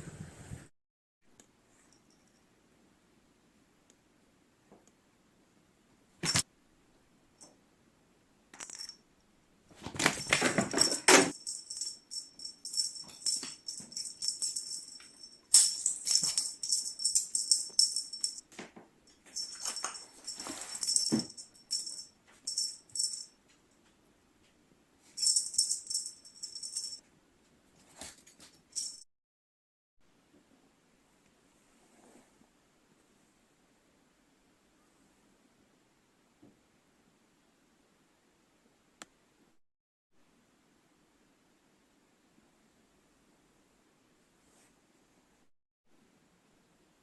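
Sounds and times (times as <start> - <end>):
high jingling rattle: 10.0 - 18.5, 19.1 - 23.4, 25.2 - 27.0, 28.6 - 29.0.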